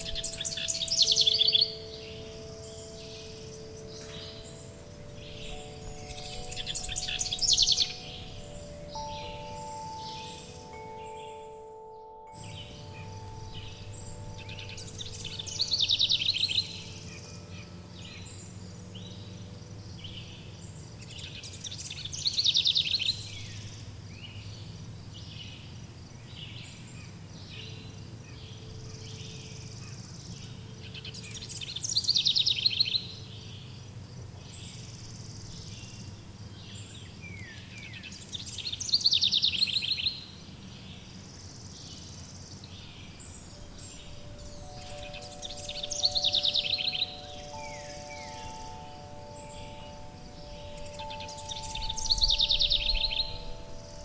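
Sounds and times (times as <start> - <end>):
wind chimes ringing: 0.0 - 24.0, 42.8 - 54.0
songbird rapid downward trill: 0.0 - 24.5, 41.6 - 54.0
birds chirping: 0.0 - 54.0.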